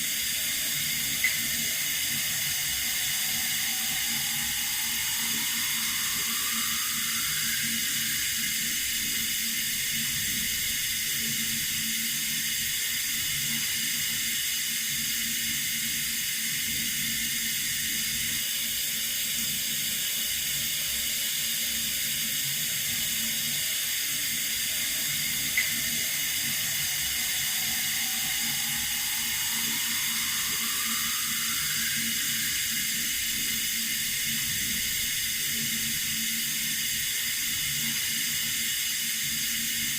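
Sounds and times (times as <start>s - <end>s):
water running from a tap: 0.0s - 20.4s, 21.2s - 39.9s
faint rising tone: 0.1s - 10.6s, 23.6s - 35.0s.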